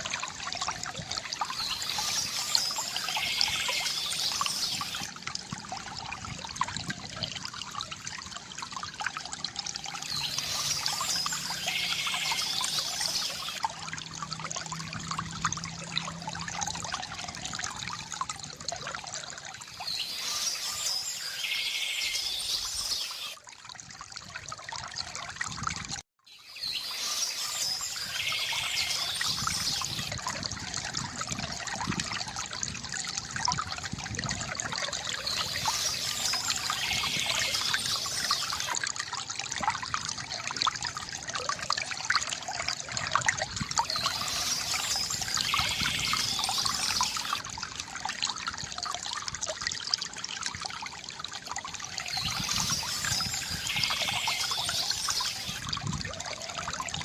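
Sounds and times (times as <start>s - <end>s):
fountain water trickling and gurgling: 0.0s - 57.0s.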